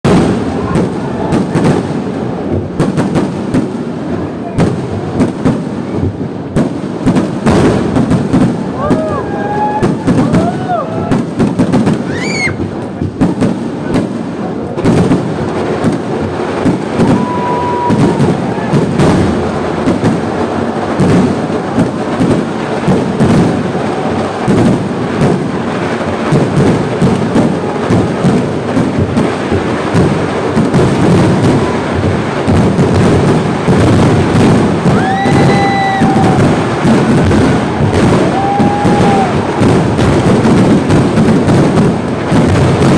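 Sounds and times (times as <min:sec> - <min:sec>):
fireworks cracks and booms: 0:00.0 - 0:42.9
rising firework whistle: 0:07.6 - 0:12.8, 0:16.6 - 0:28.3, 0:30.6 - 0:41.7.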